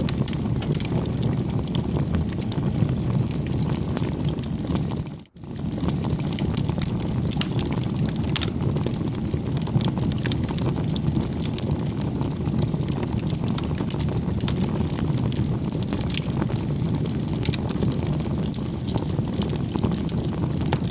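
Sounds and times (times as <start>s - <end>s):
bonfire crackling: 0.0s - 20.9s
burning wood snapping and popping: 0.0s - 20.9s.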